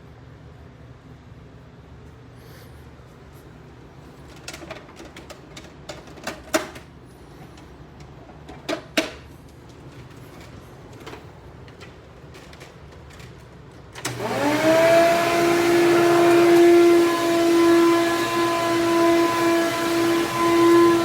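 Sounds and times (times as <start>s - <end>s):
clicks and knocks handling vacuum: 4.2s - 21.0s.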